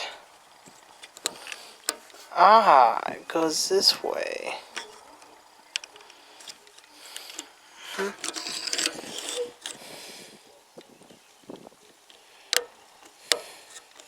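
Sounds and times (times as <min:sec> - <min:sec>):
toy parts clicking and rattling: 0:05.7 - 0:09.8.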